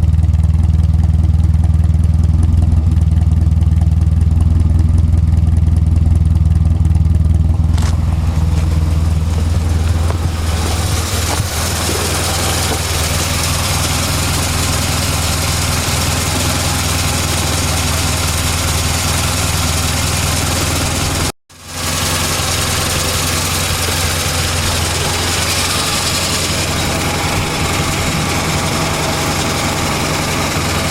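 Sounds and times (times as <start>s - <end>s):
car engine idling: 0.0s - 30.9s
rushing hiss: 7.6s - 17.3s.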